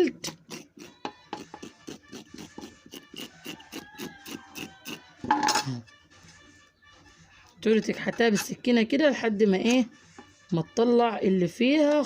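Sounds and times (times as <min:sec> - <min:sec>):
knife scraping duck skin: 0:00.0 - 0:08.7.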